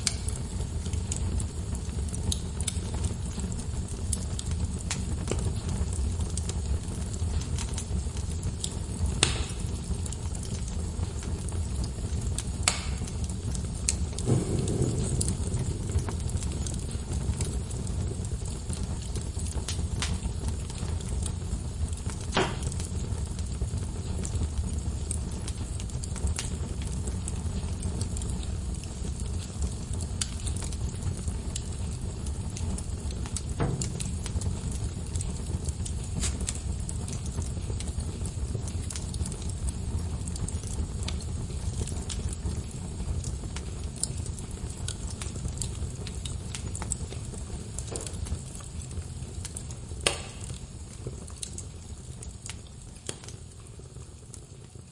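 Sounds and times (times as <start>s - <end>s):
flames rumbling: 0.0s - 54.9s
wood fire crackling: 0.0s - 54.9s
logs popping: 9.2s - 9.6s, 12.6s - 13.1s, 13.8s - 20.2s, 22.0s - 22.9s, 33.3s - 37.2s, 50.0s - 50.6s.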